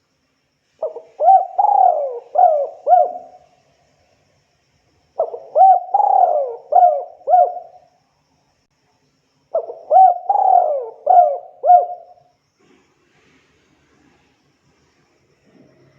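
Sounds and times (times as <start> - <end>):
dove cooing: 0.8 - 3.5, 5.2 - 7.8, 9.5 - 12.2.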